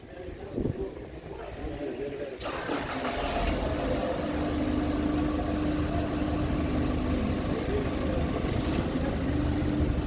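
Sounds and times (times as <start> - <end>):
drilling rig engine rumbling: 2.4 - 10.0.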